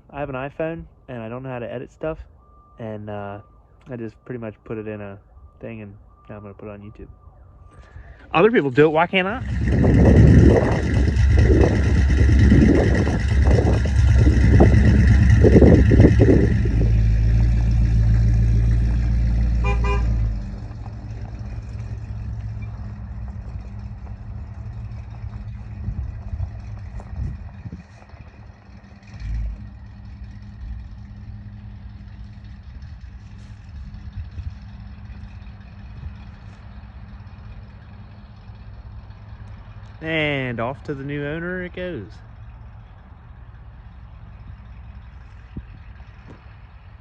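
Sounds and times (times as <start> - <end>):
engine revving and pulling away: 2.4 - 47.0
rapid car horn toots: 19.6 - 20.3.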